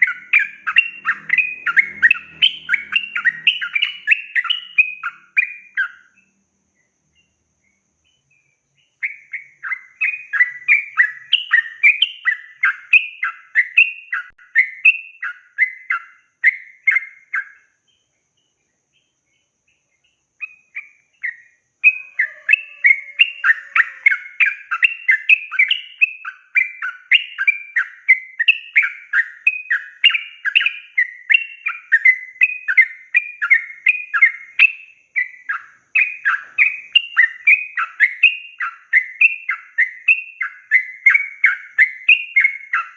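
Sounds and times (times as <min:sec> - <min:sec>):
bulbul singing chattering notes: 0:00.0 - 0:06.1.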